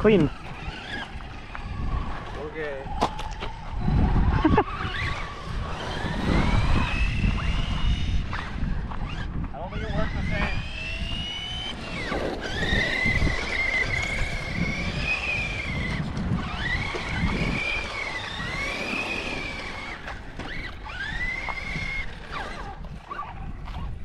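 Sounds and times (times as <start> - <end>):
tyres rumbling on dirt: 0.0 - 22.8
electric motor whining: 0.0 - 24.0.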